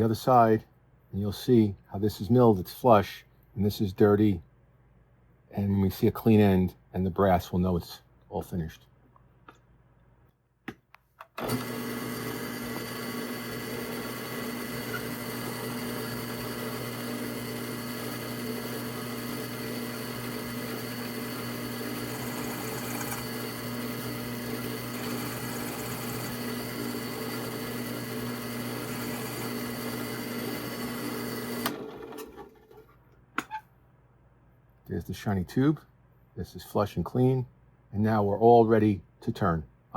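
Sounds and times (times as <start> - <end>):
drill press humming: 11.4 - 32.8.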